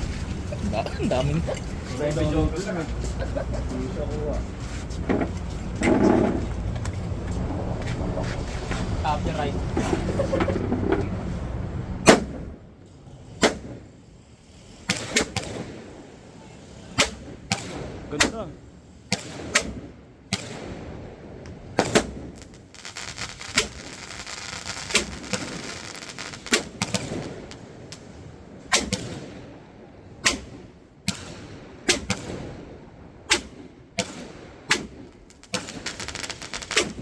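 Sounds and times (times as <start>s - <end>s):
firework bangs: 0.0s - 37.0s
firework hiss: 11.1s - 29.1s, 34.1s - 37.0s.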